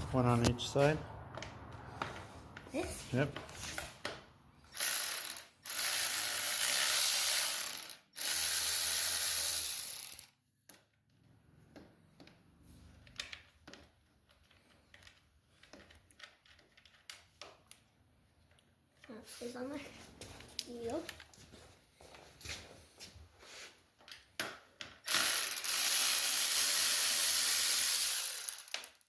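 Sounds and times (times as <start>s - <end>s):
ratchet wrench clicking: 4.7s - 10.8s, 25.0s - 29.0s
tools and parts handled: 12.1s - 19.1s.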